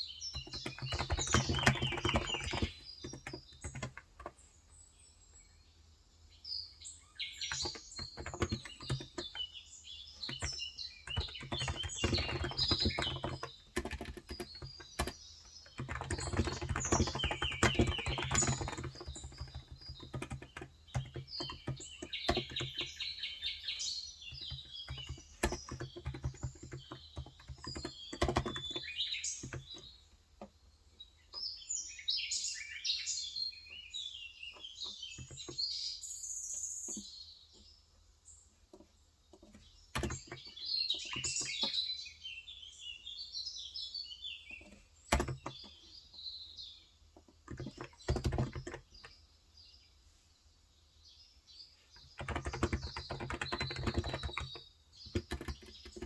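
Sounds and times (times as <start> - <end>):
small birds chirping: 0.0 - 56.0
keyboard typing: 0.3 - 4.4, 7.4 - 9.5, 10.2 - 29.9, 35.2 - 35.6, 38.7 - 41.8, 44.6 - 45.7, 47.3 - 49.1, 52.1 - 56.0.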